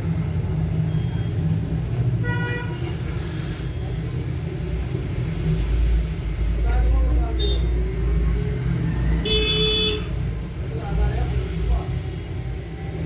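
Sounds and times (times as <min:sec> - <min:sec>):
street traffic rumble: 0:00.0 - 0:13.0
vehicle horn toot: 0:09.2 - 0:10.2.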